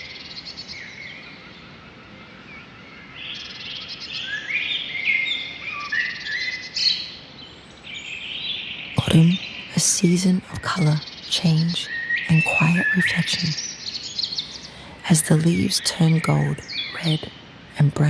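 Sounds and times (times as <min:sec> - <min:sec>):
faint steady background hiss: 0:00.0 - 0:18.0
songbirds chirping and singing: 0:00.0 - 0:18.0.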